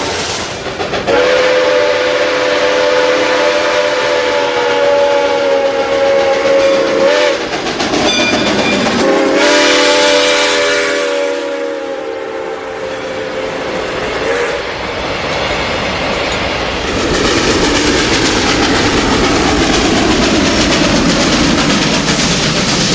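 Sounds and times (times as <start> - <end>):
moving train rumble: 0.0 - 22.9
train horn blast: 1.1 - 7.4, 8.8 - 14.7.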